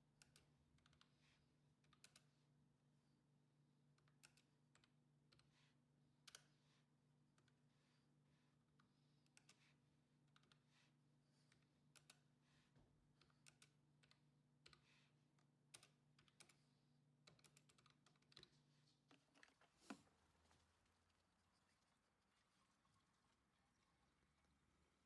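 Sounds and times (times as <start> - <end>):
small clicks and taps: 0.2 - 1.2, 1.8 - 2.3, 3.9 - 5.6, 8.7 - 10.7, 11.4 - 12.3, 13.1 - 20.1.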